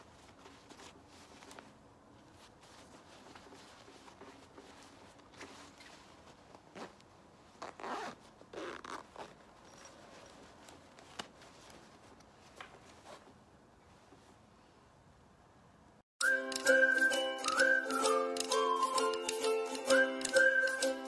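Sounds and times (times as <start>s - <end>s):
backpack handling: 2.4s - 13.2s
zipper rasping: 5.3s - 7.0s, 7.6s - 11.2s.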